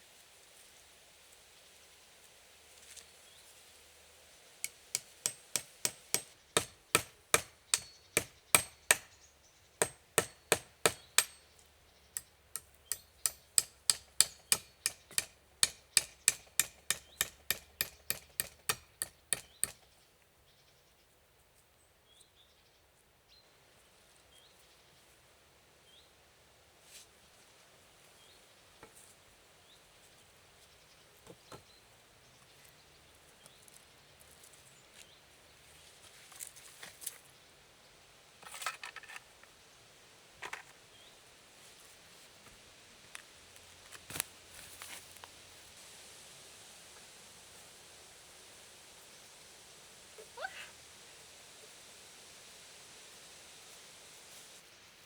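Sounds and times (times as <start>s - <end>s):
hammer strikes with slight ringing: 4.7s - 9.2s, 9.8s - 11.4s, 12.6s - 19.8s.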